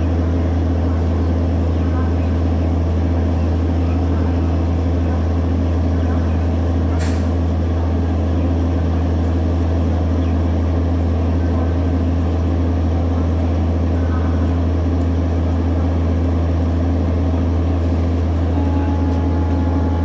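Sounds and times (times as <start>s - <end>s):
train engine drone: 0.0s - 20.0s.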